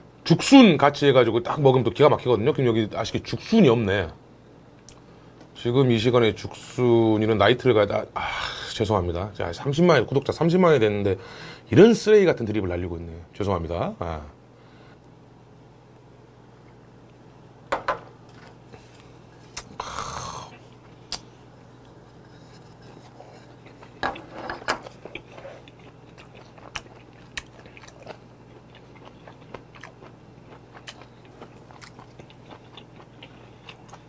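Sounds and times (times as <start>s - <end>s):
low steady hum: 0.0s - 34.0s
man chewing and crunching food: 18.3s - 34.0s.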